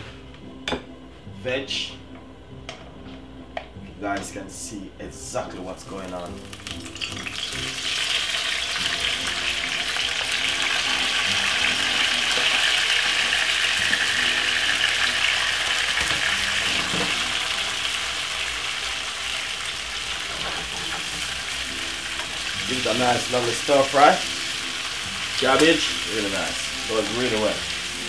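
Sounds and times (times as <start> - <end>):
vegetables sizzling in a frying pan: 5.8 - 28.0.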